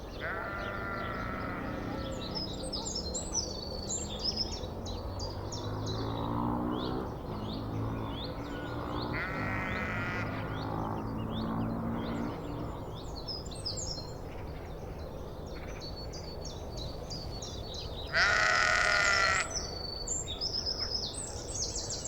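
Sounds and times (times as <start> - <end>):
lower steady animal call: 0.1 - 3.3, 8.3 - 10.7, 18.1 - 19.8
drawn-out animal calls: 0.2 - 3.0, 7.6 - 12.9, 18.1 - 19.8.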